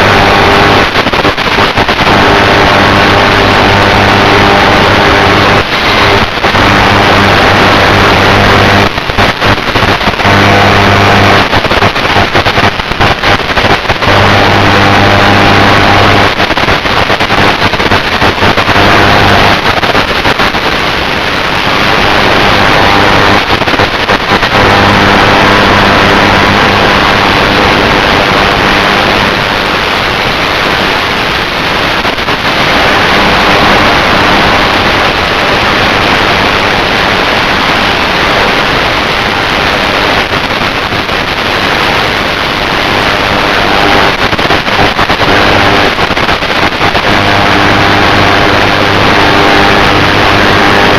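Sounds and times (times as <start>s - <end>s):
electric motor hum: 2.0s - 8.8s, 10.2s - 11.5s, 14.0s - 16.4s, 24.5s - 29.2s.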